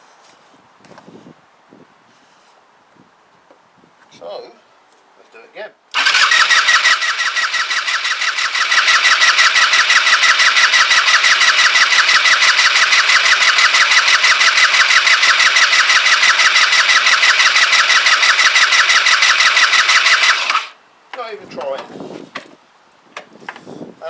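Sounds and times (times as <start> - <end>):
scooter engine cranking on starter: 5.9 - 20.8.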